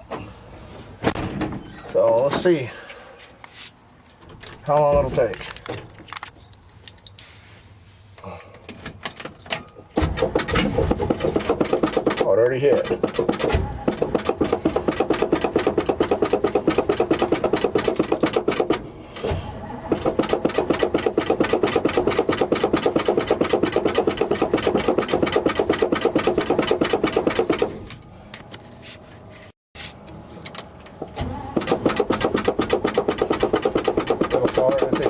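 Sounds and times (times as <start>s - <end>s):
truck engine cranking: 8.9s - 28.0s, 30.7s - 35.0s.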